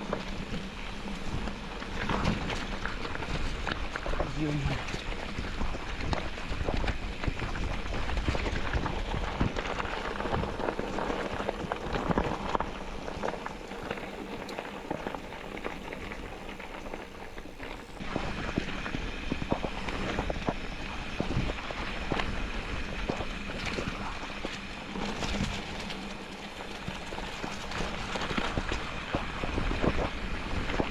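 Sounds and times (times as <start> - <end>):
tyres rolling over stones: 0.1 - 18.0.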